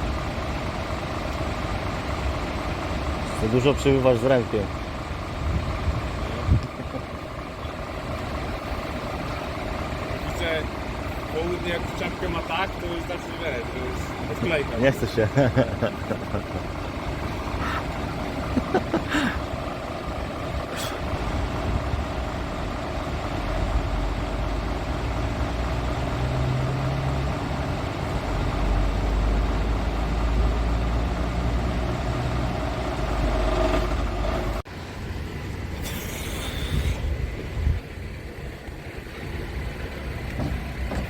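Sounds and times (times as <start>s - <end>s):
truck diesel engine running: 0.0s - 41.0s
air hiss: 35.8s - 37.2s.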